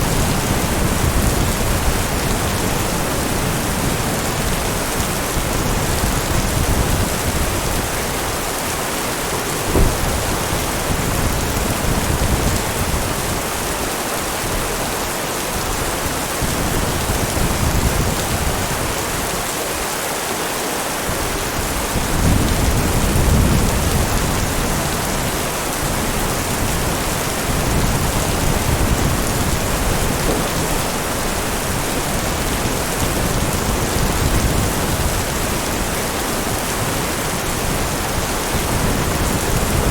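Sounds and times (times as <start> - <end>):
heavy rain: 0.0 - 39.9
thunder rumbling: 5.4 - 13.2, 22.0 - 35.8
sharp knock: 9.7 - 10.2.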